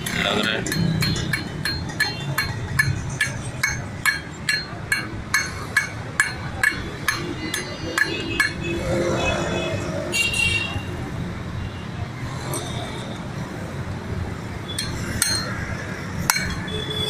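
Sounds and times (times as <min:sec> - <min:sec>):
hammer striking metal: 0:00.0 - 0:08.8, 0:14.7 - 0:16.8.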